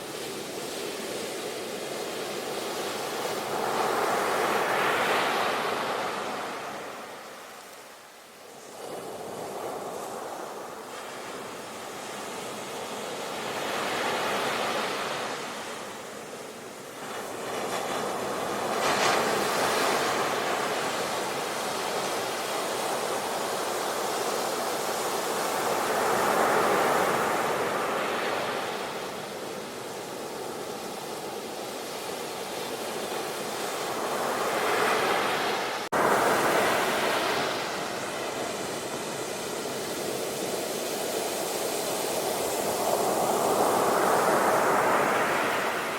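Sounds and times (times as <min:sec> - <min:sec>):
ocean waves surging: 0:16.9 - 0:45.9.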